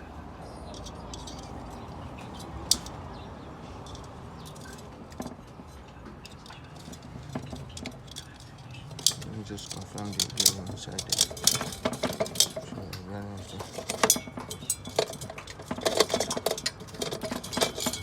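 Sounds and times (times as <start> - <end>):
low background noise: 0.0 - 18.0
metallic clicks: 0.7 - 3.0, 3.8 - 5.4, 6.2 - 12.7.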